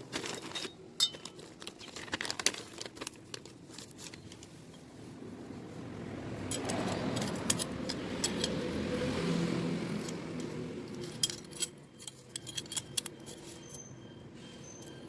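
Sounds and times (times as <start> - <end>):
metal bike parts clinking: 0.0 - 3.1, 6.4 - 9.1, 9.8 - 15.0.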